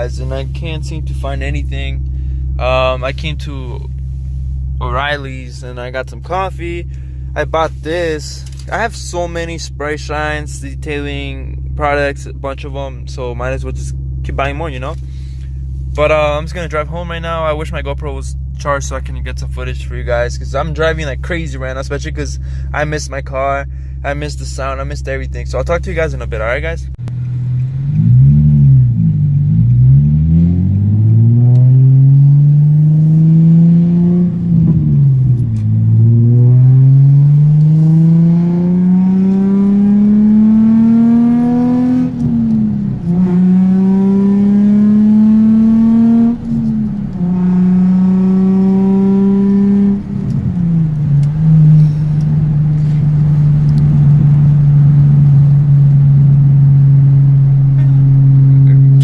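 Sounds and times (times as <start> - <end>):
car engine accelerating through gears: 27.0 - 59.0.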